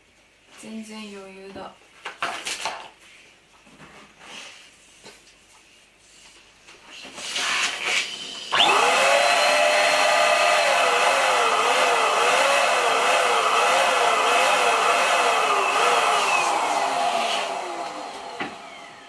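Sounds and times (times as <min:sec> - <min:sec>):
electric air pump whining: 0:07.4 - 0:19.0.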